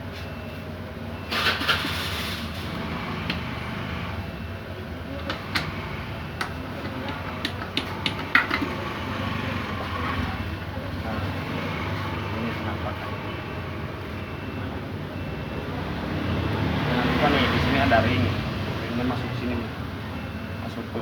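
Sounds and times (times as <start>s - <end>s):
metal engine parts clinking: 5.2s - 8.9s.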